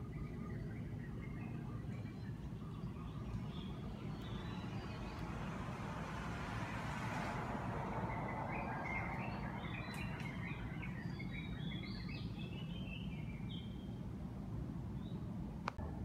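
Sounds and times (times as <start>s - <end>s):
small birds chirping: 0.0s - 6.7s, 7.9s - 14.0s.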